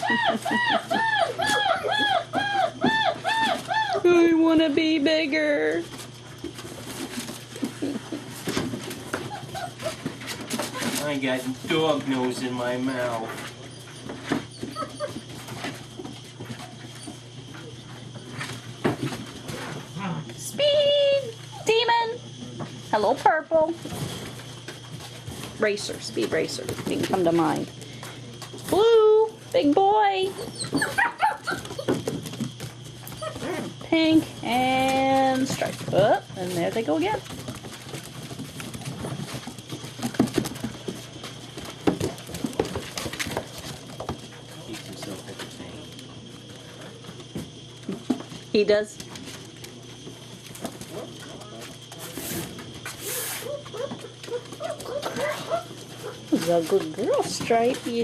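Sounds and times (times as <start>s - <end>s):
puppies whimpering and yipping: 0.0s - 4.1s, 9.1s - 10.9s, 13.6s - 15.5s, 30.3s - 32.1s, 33.1s - 33.8s
puppies' paws pattering: 0.0s - 21.8s, 22.6s - 58.0s
scuffling and bumps of paws: 30.9s - 46.3s.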